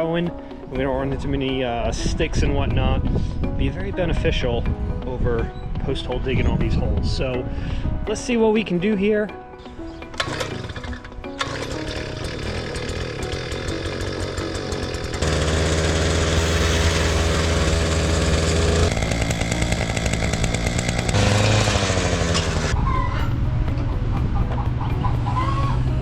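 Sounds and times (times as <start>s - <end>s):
small gas engine revving: 10.2s - 22.8s.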